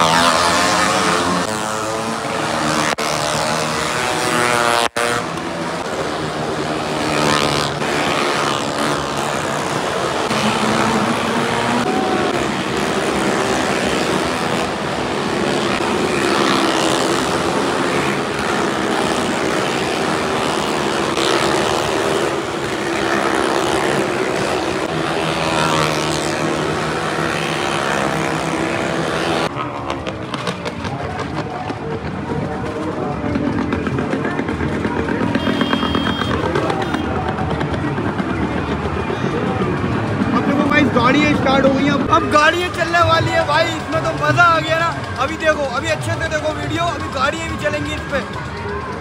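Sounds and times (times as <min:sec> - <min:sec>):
motorcycle and car engines revving: 0:00.0 - 0:49.0.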